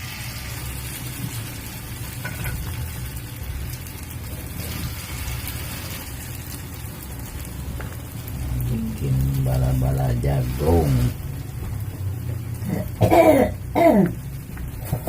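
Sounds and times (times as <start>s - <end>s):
hot oil sizzling: 0.0s - 15.0s
low hum: 3.6s - 15.0s.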